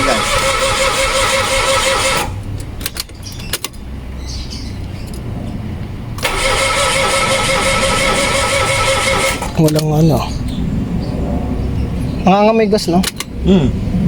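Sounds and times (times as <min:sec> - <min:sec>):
starter motor cranking engine: 0:00.0 - 0:03.0, 0:06.2 - 0:09.8.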